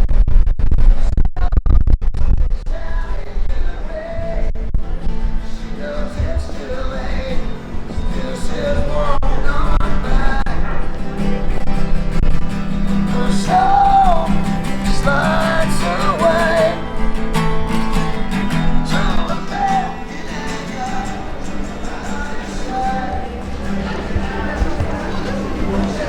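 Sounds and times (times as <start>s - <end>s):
acoustic guitar strumming: 2.8s - 26.0s
person singing: 13.0s - 16.9s, 18.6s - 26.0s.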